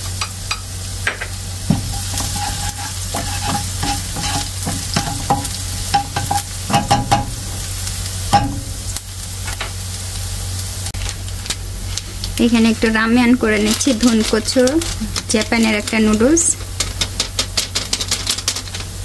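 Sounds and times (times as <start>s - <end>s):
onion and garlic sizzling in oil: 0.0s - 19.0s
spatula scraping a pan: 1.6s - 7.6s.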